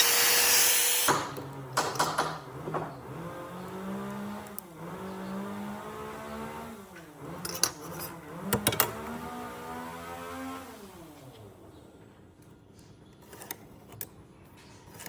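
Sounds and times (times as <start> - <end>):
power tool motor running: 0.0 - 1.3.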